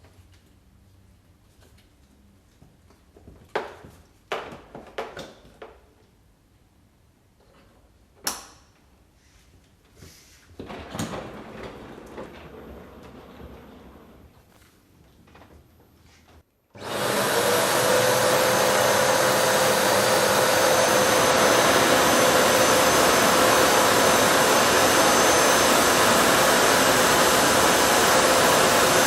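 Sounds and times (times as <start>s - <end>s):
vacuum cleaner running: 10.7s - 14.5s, 16.7s - 29.0s.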